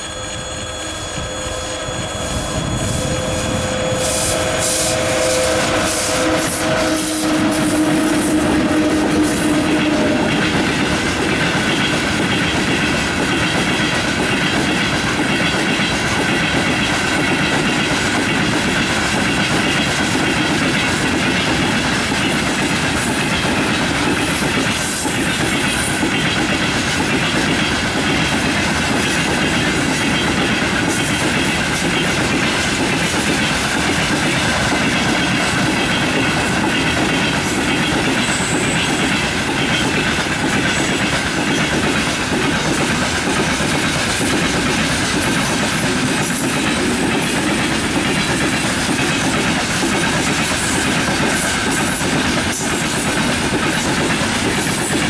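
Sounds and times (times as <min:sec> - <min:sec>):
faint high ringing tones: 0:00.0 - 0:06.3
steel wheels rolling on rails: 0:00.0 - 0:55.0.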